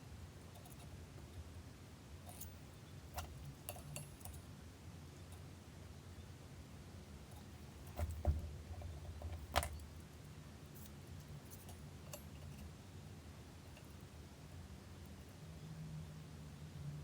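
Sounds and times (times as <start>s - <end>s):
small metal tools clicking: 3.2s - 4.4s.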